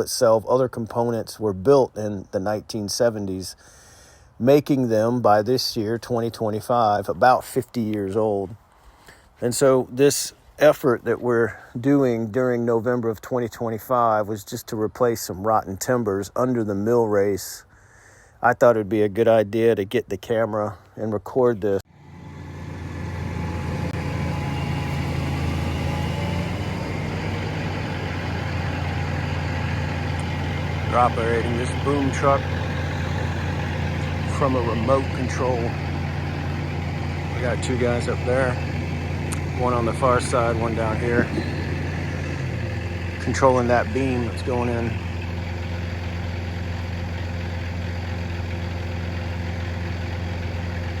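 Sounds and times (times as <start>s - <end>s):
truck engine humming: 21.8s - 51.0s.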